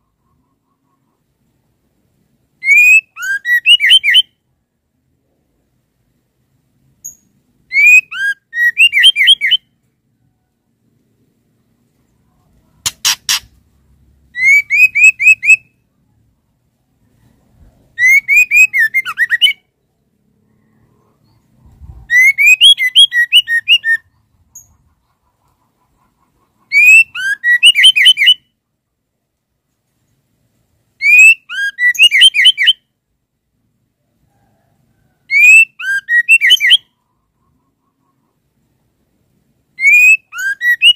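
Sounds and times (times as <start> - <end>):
bird chirping: 2.6 - 4.4, 7.0 - 10.5, 11.2 - 16.3, 16.9 - 28.6, 31.0 - 32.9, 35.3 - 38.8, 39.7 - 40.9
quick triple click: 12.9 - 13.5.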